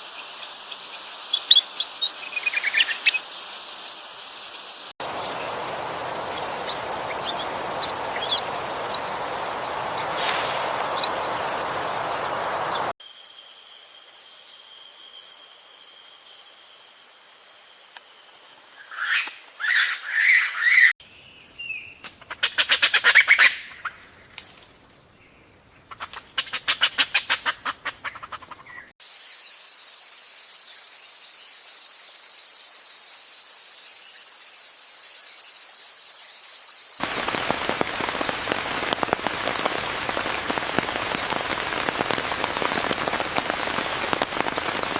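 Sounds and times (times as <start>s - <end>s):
rain hissing: 0.0s - 13.0s, 37.0s - 44.9s.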